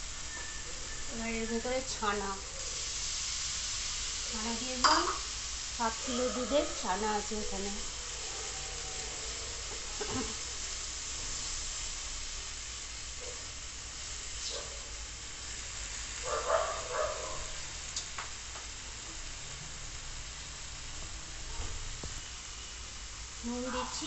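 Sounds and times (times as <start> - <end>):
food frying in oil: 0.0 - 24.0.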